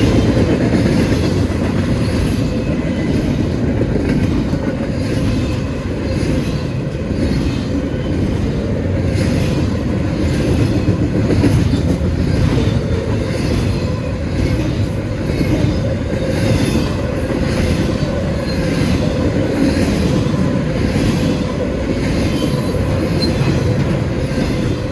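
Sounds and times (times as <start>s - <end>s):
freight train rumbling: 0.0s - 24.9s.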